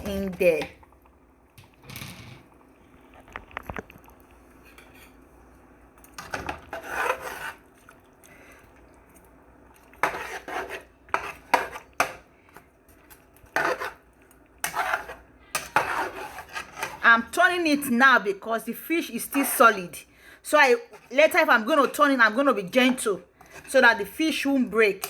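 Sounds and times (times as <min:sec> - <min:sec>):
spoon scraping a pot: 0:06.2 - 0:07.6, 0:10.0 - 0:12.2, 0:13.5 - 0:17.2.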